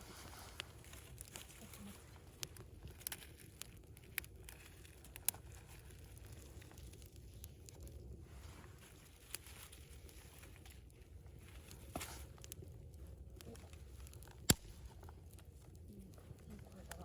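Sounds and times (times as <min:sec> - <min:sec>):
bonfire crackling: 0:00.0 - 0:17.0
sharp fire pops: 0:14.0 - 0:15.4.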